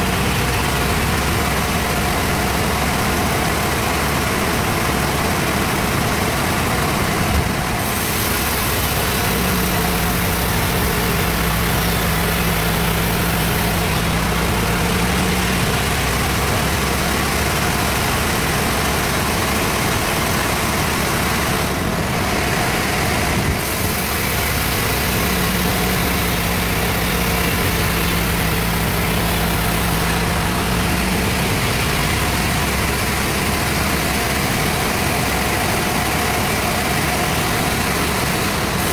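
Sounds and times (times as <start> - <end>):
band saw cutting log: 7.8 - 21.8, 22.7 - 38.9.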